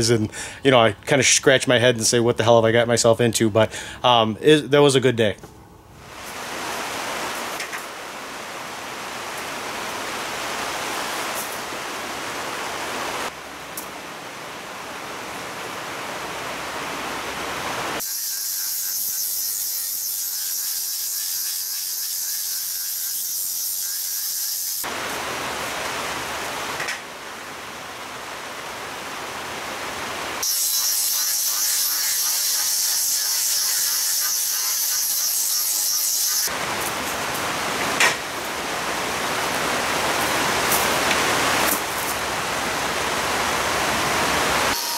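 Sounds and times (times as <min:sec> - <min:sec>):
angle grinder sanding wood: 0:18.0 - 0:24.9, 0:30.4 - 0:36.5.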